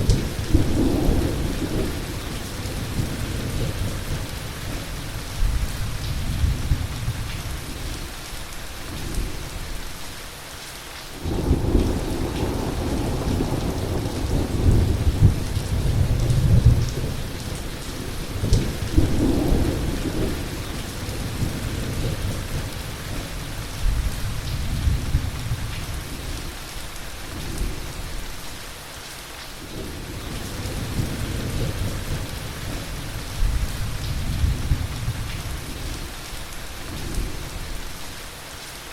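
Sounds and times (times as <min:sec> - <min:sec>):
loud thunderclap: 0:00.0 - 0:07.4, 0:11.2 - 0:26.2, 0:29.7 - 0:36.0
rolling thunder: 0:00.0 - 0:08.0, 0:11.2 - 0:26.5, 0:29.7 - 0:36.2
heavy rain: 0:00.0 - 0:38.9.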